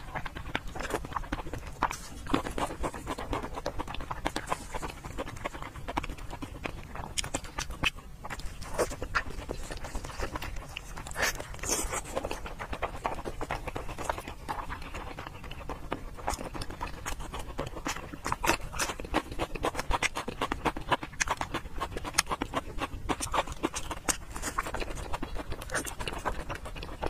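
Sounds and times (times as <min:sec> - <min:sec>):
chewing and lip smacks: 0:00.0 - 0:27.0.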